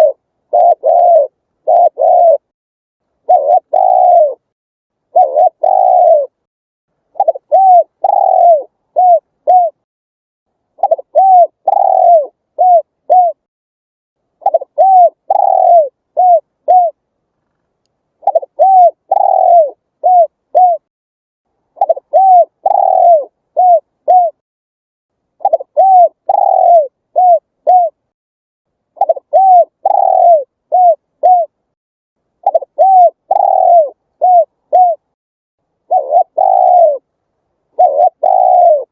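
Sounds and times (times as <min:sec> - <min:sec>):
dove cooing: 0:00.0 - 0:02.5, 0:03.2 - 0:04.5, 0:05.1 - 0:06.4, 0:07.2 - 0:09.8, 0:10.8 - 0:13.5, 0:14.4 - 0:17.0, 0:18.2 - 0:20.9, 0:21.8 - 0:24.4, 0:25.4 - 0:28.0, 0:29.0 - 0:31.6, 0:32.4 - 0:35.1, 0:35.8 - 0:37.1, 0:37.7 - 0:38.9.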